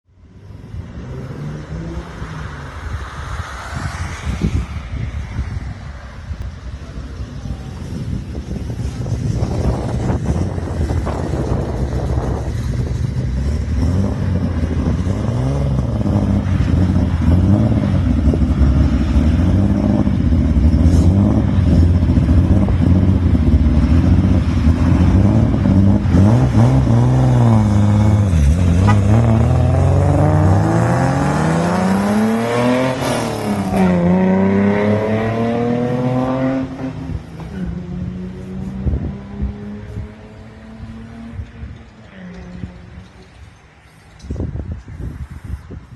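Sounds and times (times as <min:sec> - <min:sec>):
car engines revving: 0:00.1 - 0:45.1
car accelerating hard: 0:07.7 - 0:41.4.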